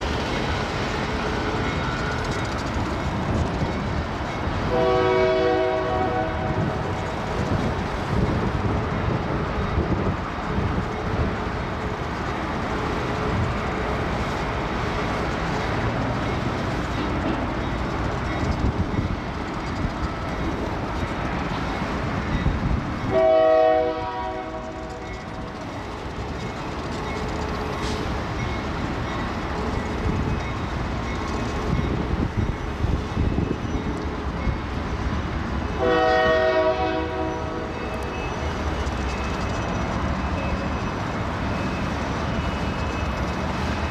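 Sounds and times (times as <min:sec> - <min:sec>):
diesel locomotive rumbling past: 0:00.0 - 0:43.9
train horn blast: 0:04.6 - 0:06.8, 0:23.1 - 0:24.9, 0:35.8 - 0:37.8.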